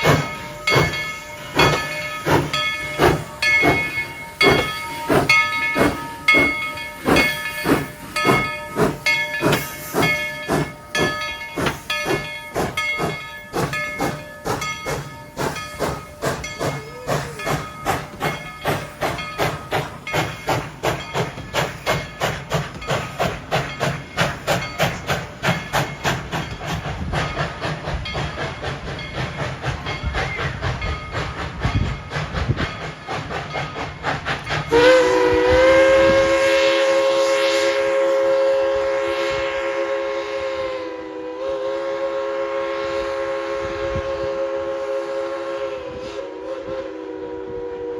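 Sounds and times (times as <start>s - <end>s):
steam hissing: 0.0s - 47.9s
steam locomotive chuffing: 0.0s - 47.9s.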